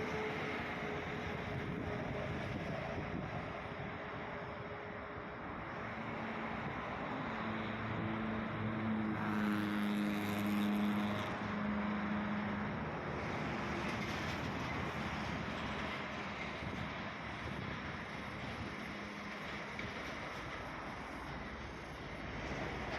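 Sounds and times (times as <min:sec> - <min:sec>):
wind noise: 0:00.0 - 0:04.5, 0:13.2 - 0:20.3
vehicle engine humming: 0:00.0 - 0:16.2
outdoor traffic: 0:00.0 - 0:22.9.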